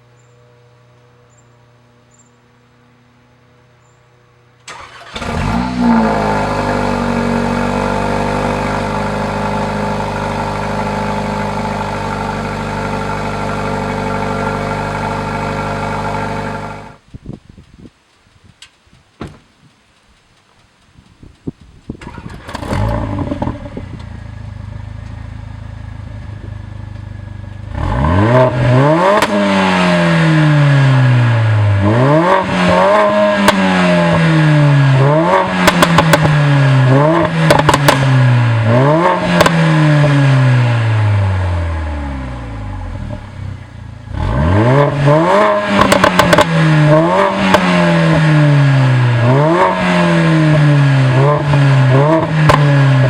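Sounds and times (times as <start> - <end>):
car engine starting and idling: 4.6 - 17.1, 18.6 - 53.0
car engine revving: 4.7 - 17.0, 22.0 - 53.0
exhaust pops and crackles: 4.7 - 53.0.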